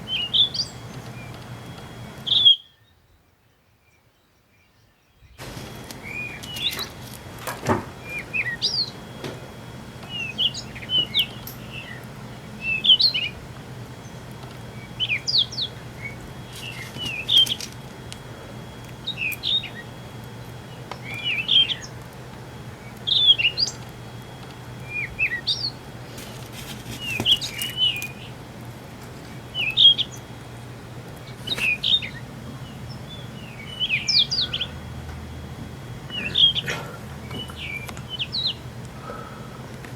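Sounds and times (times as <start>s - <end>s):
birds chirping: 0.0s - 39.9s
steady low hum: 0.0s - 39.9s.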